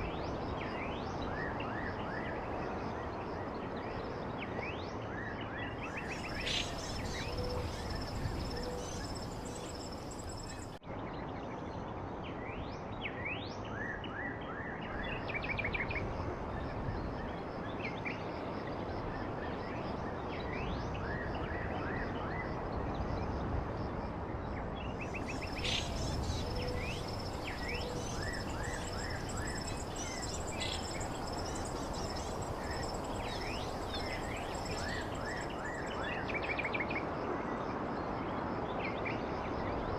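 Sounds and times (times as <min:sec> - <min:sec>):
steady background hiss: 0:05.6 - 0:10.8, 0:24.8 - 0:37.3
small birds chirping: 0:05.9 - 0:10.8, 0:25.0 - 0:36.0.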